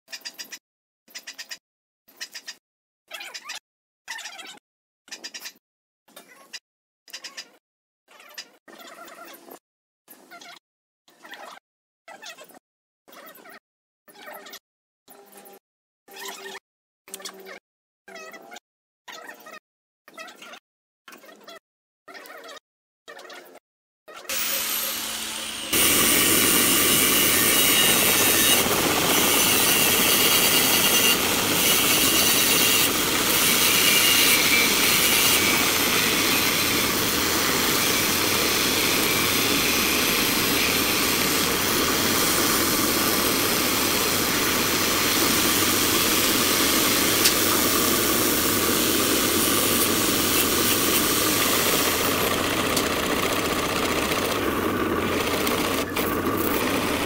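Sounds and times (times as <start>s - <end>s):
drill press boring into wood: 24.3s - 57.0s.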